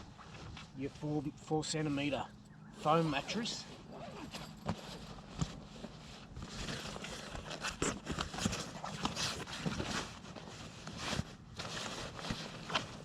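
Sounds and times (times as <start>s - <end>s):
bedding rustling and scraping: 2.9s - 13.0s.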